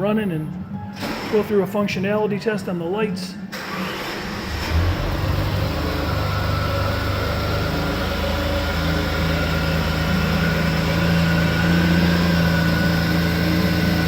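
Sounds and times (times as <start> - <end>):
car engine idling: 3.6 - 14.0.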